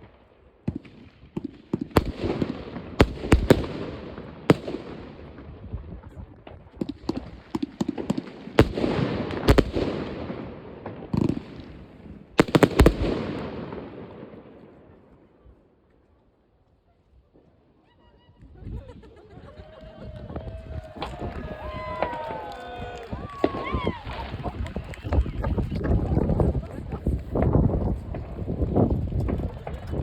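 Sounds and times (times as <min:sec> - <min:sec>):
fireworks bangs with crackle: 0:00.0 - 0:15.1, 0:21.0 - 0:26.6.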